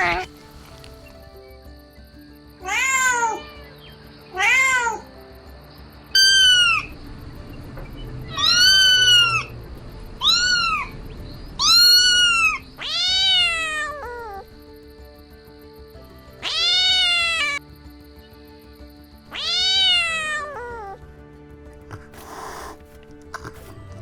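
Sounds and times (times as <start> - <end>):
kitten meowing: 0.0 - 0.4, 2.6 - 3.7, 4.4 - 5.0, 6.2 - 6.9, 8.3 - 9.5, 10.2 - 10.9, 11.6 - 14.4, 16.4 - 17.6, 19.3 - 21.0
soft background music: 0.0 - 24.0.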